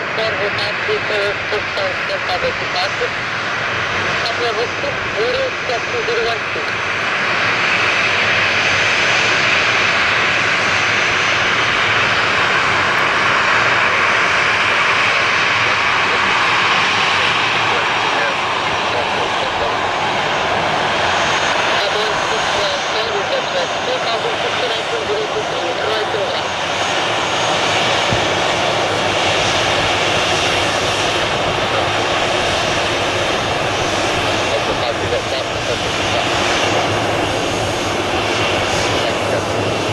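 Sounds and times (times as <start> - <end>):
jet engines at high thrust: 0.0 - 39.9.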